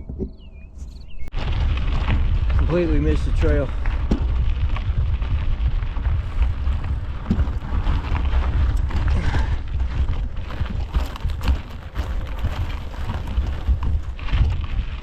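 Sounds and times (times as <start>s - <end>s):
wind rumble on microphone: 0.0s - 15.0s
bike clicks and knocks: 3.8s - 5.4s, 6.3s - 15.0s.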